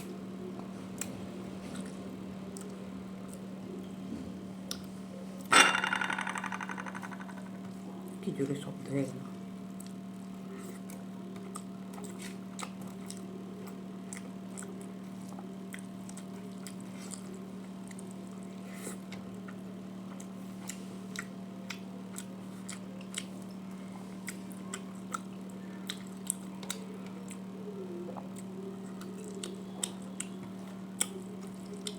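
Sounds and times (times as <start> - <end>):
low hum: 5.5 - 8.1
person chewing food: 9.8 - 23.6, 24.2 - 27.5, 28.2 - 31.9.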